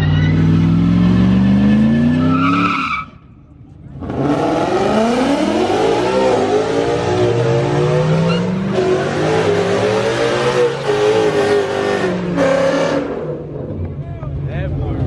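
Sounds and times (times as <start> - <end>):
car engine revving hard: 4.0 - 13.7.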